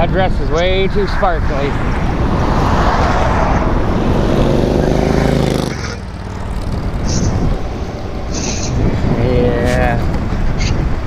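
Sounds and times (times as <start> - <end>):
traffic noise: 0.0 - 11.0
wind buffeting microphone: 0.0 - 11.0
low engine-like drone: 3.4 - 10.8.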